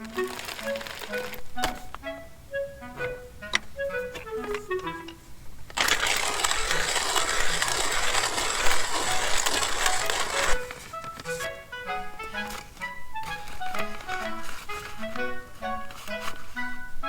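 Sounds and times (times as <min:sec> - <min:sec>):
loud dense crunching noise: 0:00.0 - 0:02.0, 0:05.6 - 0:11.6, 0:12.3 - 0:16.6
background music with plucked notes: 0:00.0 - 0:17.0.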